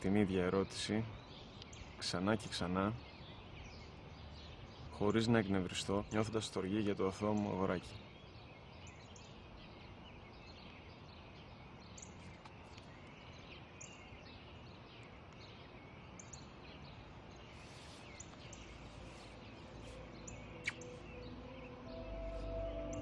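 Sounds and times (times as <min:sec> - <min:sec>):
small birds chirping: 0:00.0 - 0:23.0
soft background hiss: 0:00.0 - 0:23.0
low music tones: 0:18.6 - 0:23.0.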